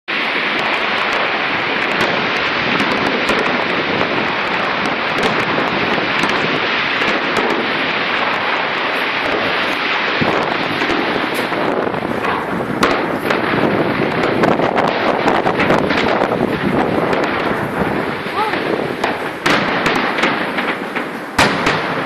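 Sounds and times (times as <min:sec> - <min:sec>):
fireworks crackling and popping: 0:00.1 - 0:22.0.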